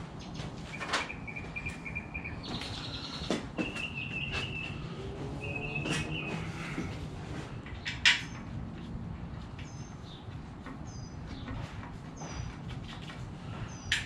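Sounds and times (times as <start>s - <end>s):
songbird trilling: 0.7s - 6.7s
hand tools clicking and knocking: 5.7s - 8.9s.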